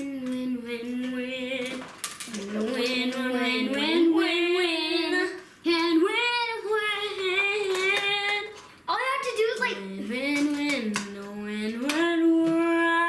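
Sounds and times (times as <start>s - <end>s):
child singing wordless tune: 0.0s - 13.0s.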